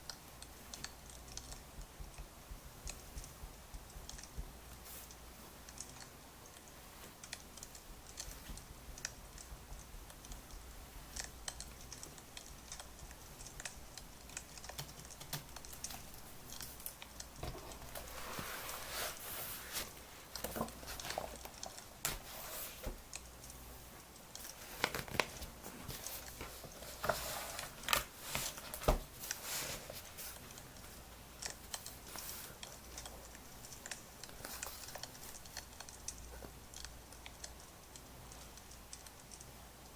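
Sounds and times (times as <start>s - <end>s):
low steady hum: 0.0s - 39.9s
rustling: 10.3s - 35.6s.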